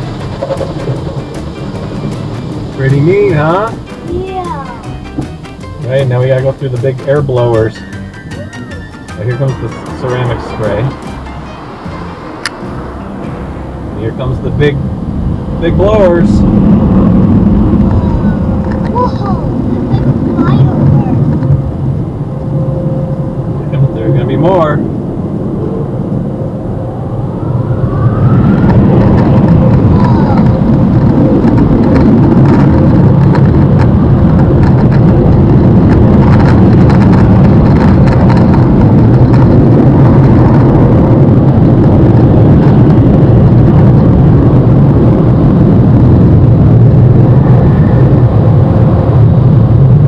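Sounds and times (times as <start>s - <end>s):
air dryer blowers rushing: 0.0s - 21.3s
faint rising whine: 7.6s - 18.8s, 21.4s - 33.2s.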